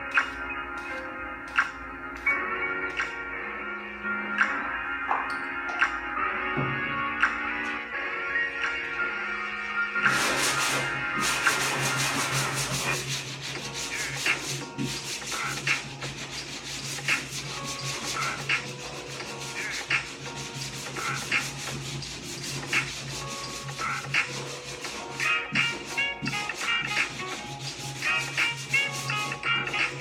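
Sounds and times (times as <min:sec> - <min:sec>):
sanding scraping strokes: 0:10.1 - 0:30.0.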